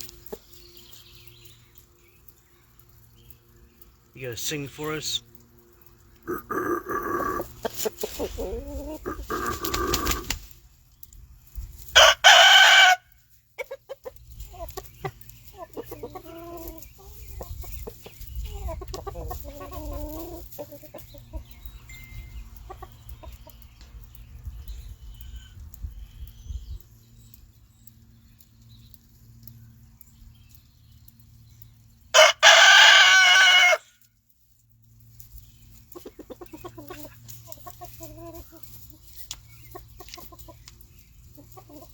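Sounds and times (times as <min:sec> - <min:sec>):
chickens clucking: 0:00.0 - 0:01.6, 0:02.8 - 0:12.4, 0:13.2 - 0:26.0, 0:35.0 - 0:41.9
rooster crowing: 0:12.0 - 0:13.1, 0:32.2 - 0:34.0.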